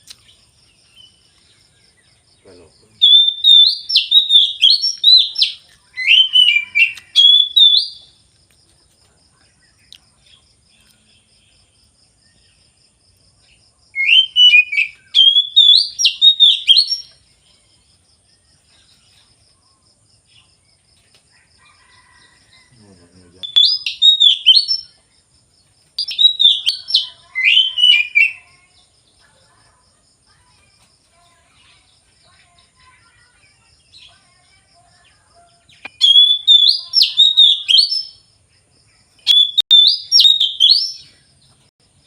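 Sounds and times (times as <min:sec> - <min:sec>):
songbird whistling song: 0:02.8 - 0:08.2, 0:13.9 - 0:17.4, 0:23.4 - 0:25.1, 0:26.0 - 0:28.8, 0:35.3 - 0:38.3, 0:39.2 - 0:41.3.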